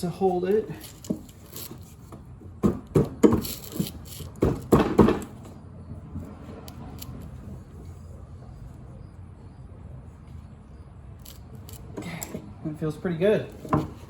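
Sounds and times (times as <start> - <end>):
socket ratchet clicking: 6.6 - 7.3, 11.2 - 12.4.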